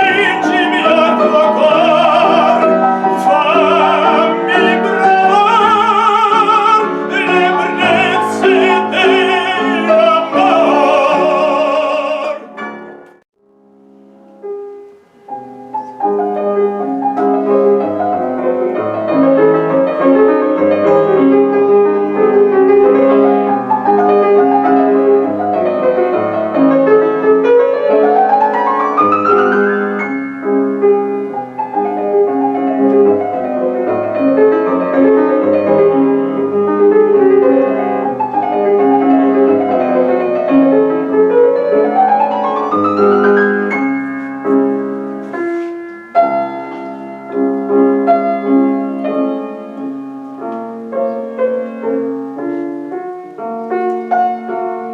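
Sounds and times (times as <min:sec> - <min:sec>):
classical singing with vibrato: 0:00.0 - 0:13.0
piano playing: 0:00.0 - 0:54.9.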